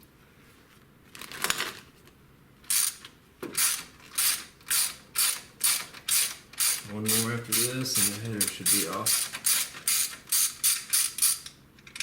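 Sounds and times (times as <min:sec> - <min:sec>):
ratchet wrench clicking: 0:02.7 - 0:03.0, 0:03.6 - 0:12.0.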